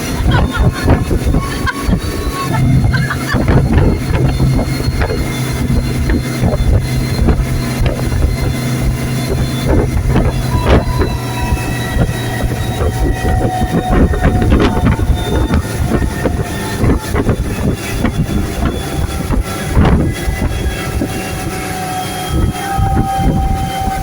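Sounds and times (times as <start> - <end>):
motorboat engine running: 0.0 - 24.0
wind buffeting microphone: 0.0 - 24.0.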